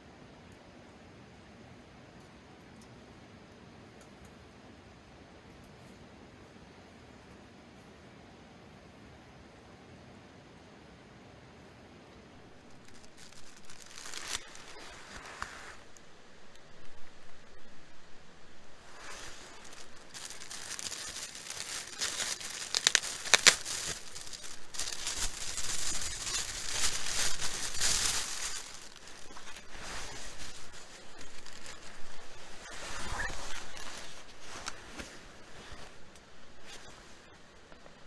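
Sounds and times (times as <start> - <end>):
crinkling and rustling: 12.4 - 38.0.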